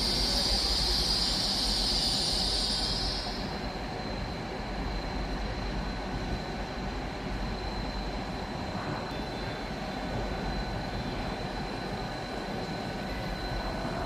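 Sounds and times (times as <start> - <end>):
passenger train rumbling: 0.0 - 14.0.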